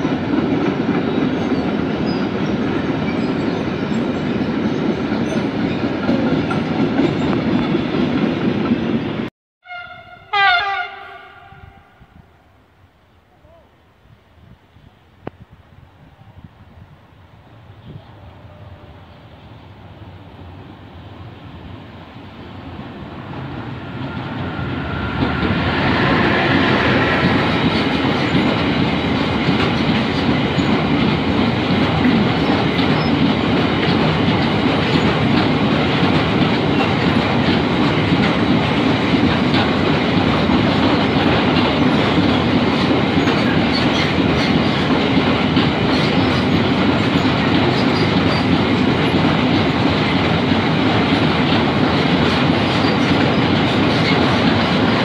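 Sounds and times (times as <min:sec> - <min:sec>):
clickety-clack over rail joints: 0:00.0 - 0:09.3, 0:24.4 - 0:55.0
freight train wheels rumbling: 0:00.0 - 0:12.2, 0:14.9 - 0:55.0.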